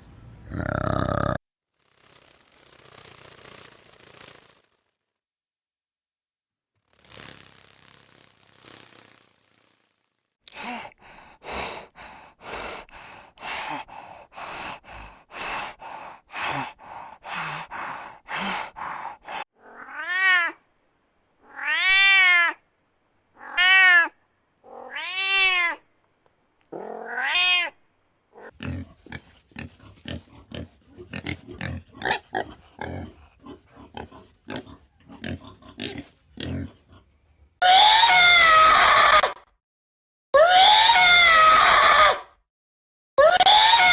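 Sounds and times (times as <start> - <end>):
short animal sounds: 0.4 - 1.4, 28.4 - 38.0
cat meowing: 19.6 - 20.6, 21.4 - 22.6, 23.4 - 25.8, 26.7 - 27.8
loud scream-like cry: 37.6 - 39.5, 40.4 - 42.3, 43.2 - 43.9.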